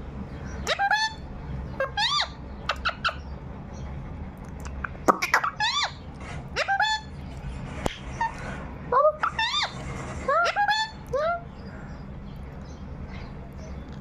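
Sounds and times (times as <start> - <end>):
parrot squawking and chirping: 0.3 - 3.9, 4.6 - 12.0.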